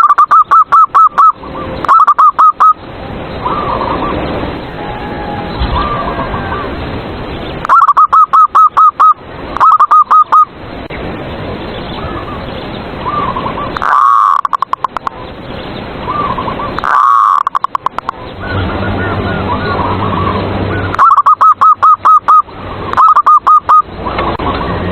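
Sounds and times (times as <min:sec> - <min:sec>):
doves cooing: 0:03.4 - 0:06.8, 0:07.6 - 0:10.5, 0:13.0 - 0:15.1, 0:16.1 - 0:24.9.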